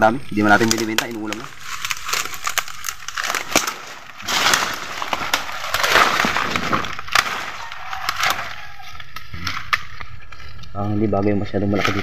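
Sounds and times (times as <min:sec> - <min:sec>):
dry leaves and twigs crackling: 0:00.0 - 0:12.0.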